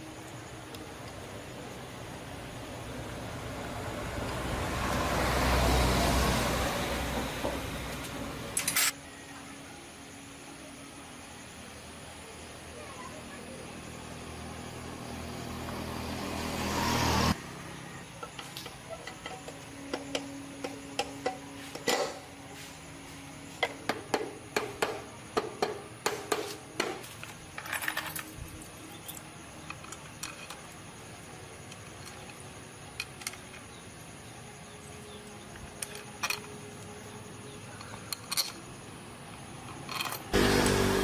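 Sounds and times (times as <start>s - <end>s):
motorcycle engine running: 40.4s - 41.0s.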